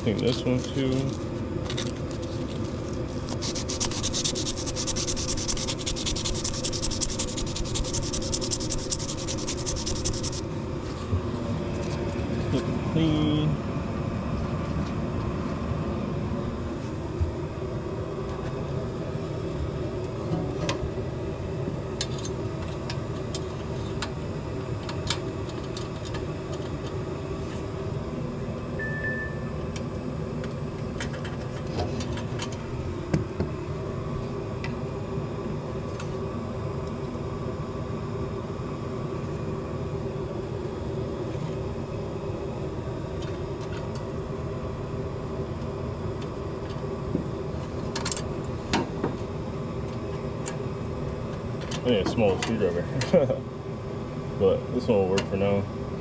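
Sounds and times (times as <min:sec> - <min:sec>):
furnace humming: 0:00.0 - 0:56.0
short beep: 0:28.8 - 0:29.6.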